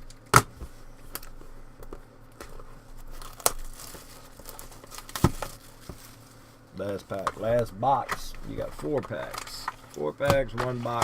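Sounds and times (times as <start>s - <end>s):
packaging crinkling and tearing: 2.5s - 11.0s.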